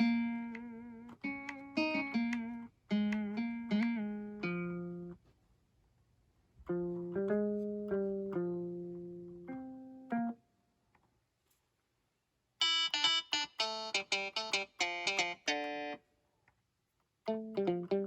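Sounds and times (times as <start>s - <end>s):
keyboard chord: 12.6s - 16.0s.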